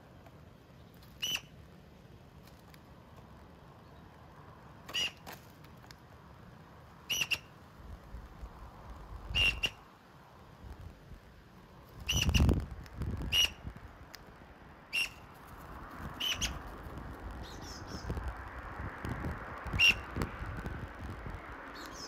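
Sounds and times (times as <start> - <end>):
bird sharp call notes: 7.1 - 7.5, 9.4 - 9.8, 14.9 - 15.2.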